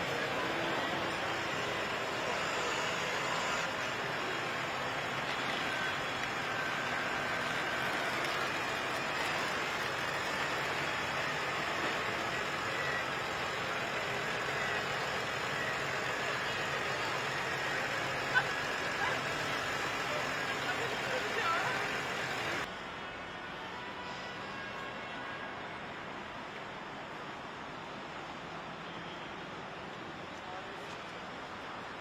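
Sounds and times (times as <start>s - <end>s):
tractor engines idling: 0.0s - 22.7s.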